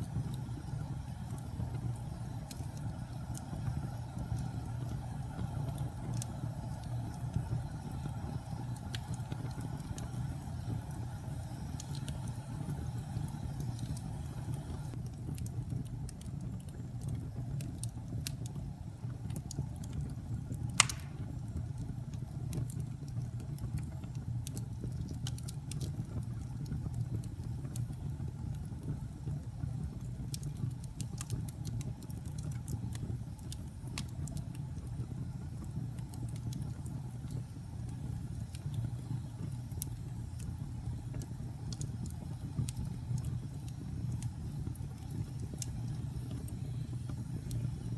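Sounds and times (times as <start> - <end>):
fire crackling: 0.0 - 47.9
fire flames rumbling: 0.0 - 47.9
loud wood pop: 20.8 - 21.3.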